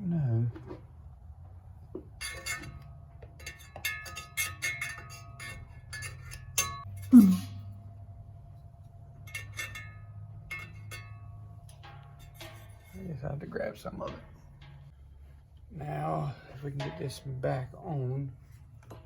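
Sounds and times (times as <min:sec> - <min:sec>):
steady low hum: 0:00.0 - 0:19.0
metal tools clinking: 0:02.1 - 0:07.6, 0:09.1 - 0:15.2.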